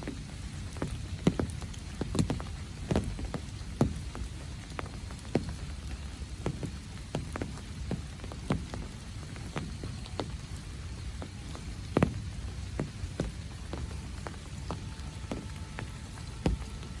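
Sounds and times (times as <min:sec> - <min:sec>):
large raindrops tapping: 0:00.0 - 0:17.0
steady rainfall: 0:00.0 - 0:17.0.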